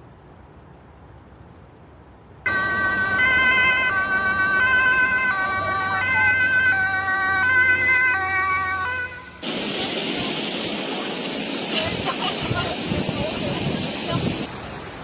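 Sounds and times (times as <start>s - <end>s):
two-tone siren: 2.5s - 9.4s.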